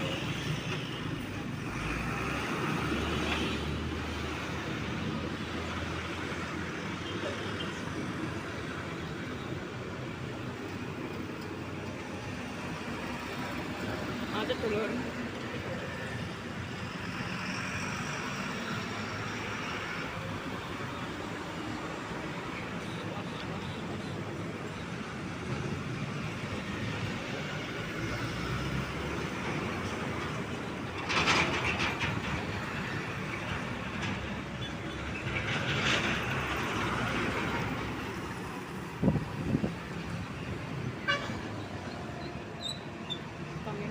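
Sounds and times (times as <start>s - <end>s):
vehicle engine and road noise: 0.0s - 43.9s.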